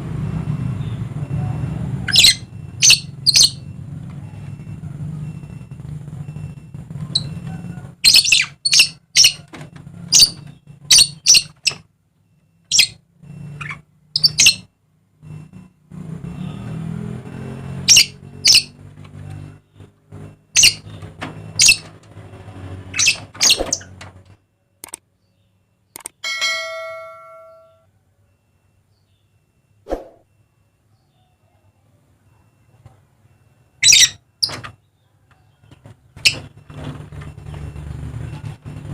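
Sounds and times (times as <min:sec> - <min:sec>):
parrots giving harsh calls: 0:08.0 - 0:09.4.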